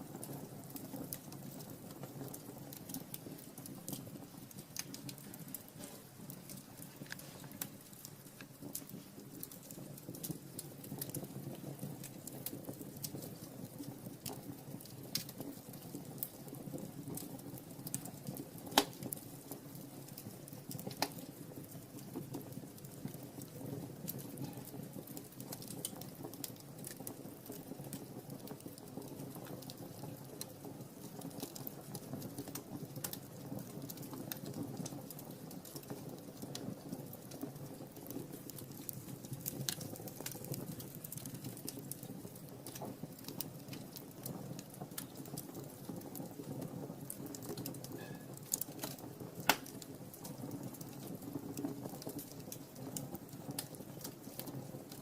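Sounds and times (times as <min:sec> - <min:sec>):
low flame rumble: 0:00.0 - 0:55.0
wood fire crackling: 0:00.0 - 0:55.0
sharp fire pop: 0:18.7 - 0:19.1, 0:48.8 - 0:49.8.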